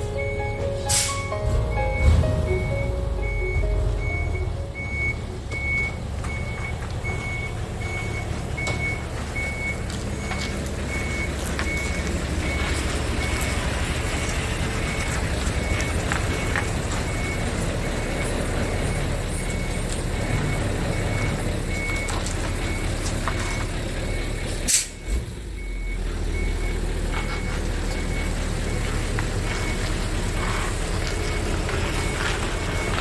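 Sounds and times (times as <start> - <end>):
high beep: 0.0 - 9.7
diesel truck engine running: 0.0 - 33.0.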